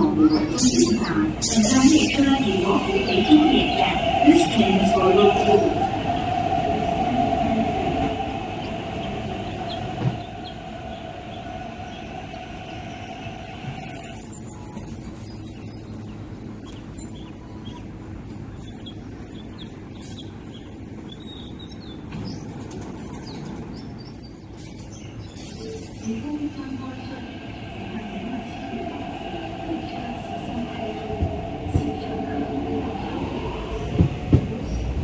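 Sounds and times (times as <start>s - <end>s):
electric train whine: 0.0s - 18.4s, 26.1s - 35.0s
standing train rumble: 0.0s - 35.0s.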